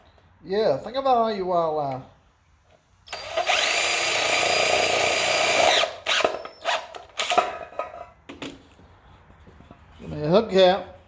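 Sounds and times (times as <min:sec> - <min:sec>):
electric drill whining: 0:03.1 - 0:07.0.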